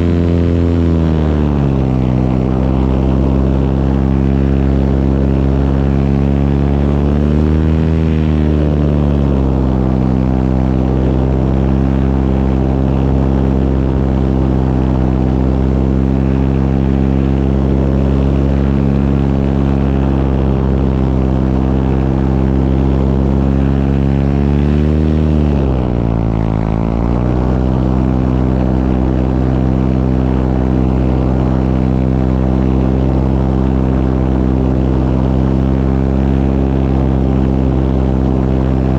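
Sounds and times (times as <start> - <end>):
propeller aircraft engine droning: 0.0 - 38.9.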